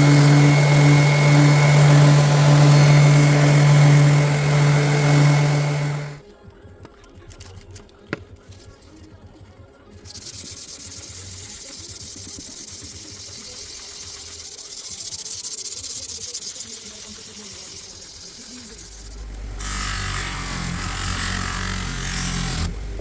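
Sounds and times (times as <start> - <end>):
loud full noise: 0.0 - 6.2.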